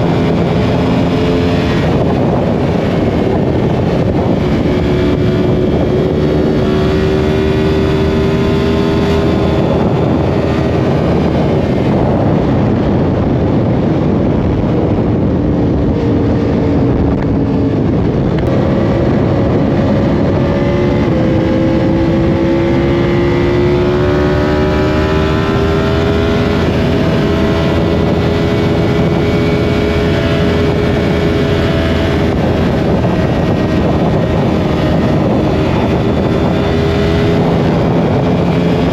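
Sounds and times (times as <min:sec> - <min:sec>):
motorcycle engine at speed: 0:00.0 - 0:38.9
wind rush on microphone: 0:00.0 - 0:38.9.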